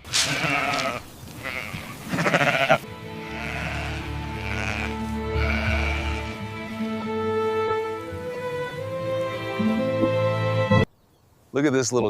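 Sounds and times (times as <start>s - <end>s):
sheep bleating: 0.1s - 6.8s
string music chords: 2.4s - 10.9s.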